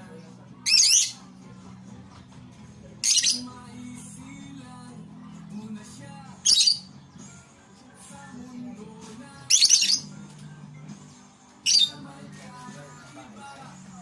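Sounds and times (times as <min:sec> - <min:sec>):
background music: 0:00.0 - 0:14.0
lovebirds squawking: 0:00.6 - 0:01.2, 0:03.0 - 0:03.6, 0:06.4 - 0:06.9, 0:09.5 - 0:10.1, 0:11.6 - 0:12.1.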